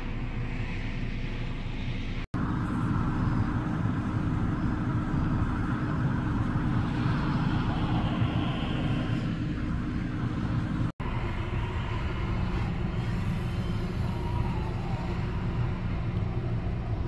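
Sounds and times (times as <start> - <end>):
car wash equipment rumble: 0.0 - 17.0.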